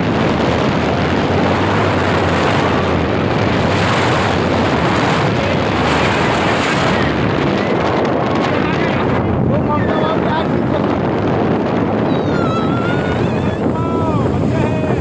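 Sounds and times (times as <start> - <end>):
speedboat engine hum: 0.0 - 15.0
wind rushing on microphone: 0.0 - 15.0.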